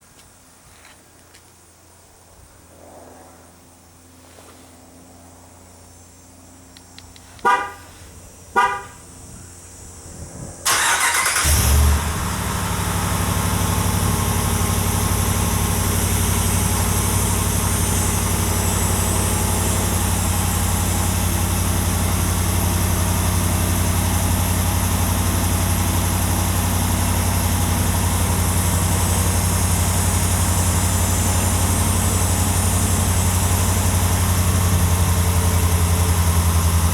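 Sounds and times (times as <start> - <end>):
engine idling: 6.9 - 10.0, 10.6 - 36.9
car horn chirps: 7.4 - 8.0, 8.6 - 9.0
engine cranking and starting: 10.6 - 21.0.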